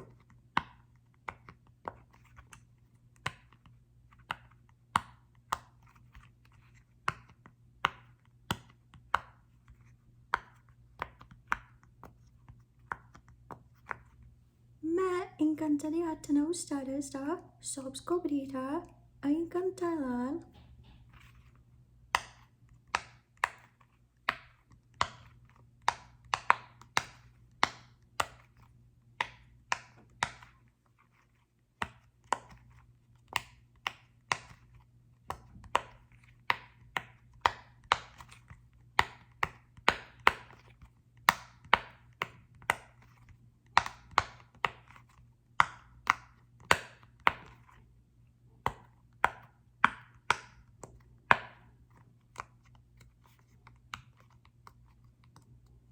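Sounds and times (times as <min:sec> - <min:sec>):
sharp taps on small ball: 0:07.0 - 0:14.2, 0:22.1 - 0:28.6, 0:35.3 - 0:47.6, 0:48.6 - 0:51.8.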